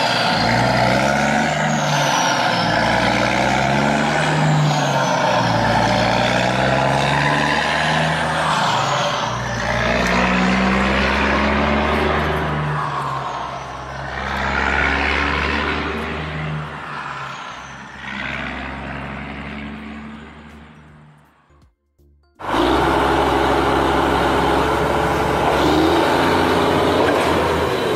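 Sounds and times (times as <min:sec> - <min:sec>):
truck engine running: 0:22.3 - 0:27.9.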